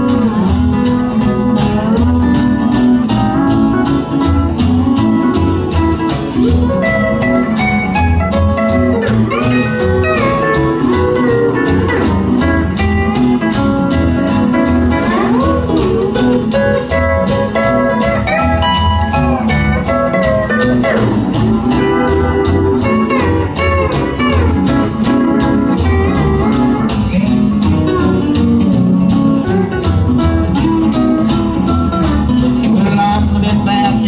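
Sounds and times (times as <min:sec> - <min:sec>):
guitar solo with sliding notes: 0:00.0 - 0:34.0
pulsing bass beat: 0:00.0 - 0:34.0.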